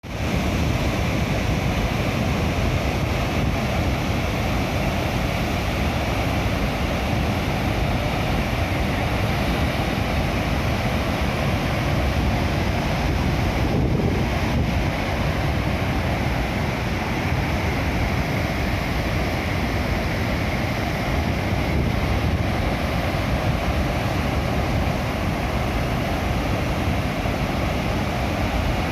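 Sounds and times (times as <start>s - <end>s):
waterfall rushing over rock: 0.0s - 28.9s.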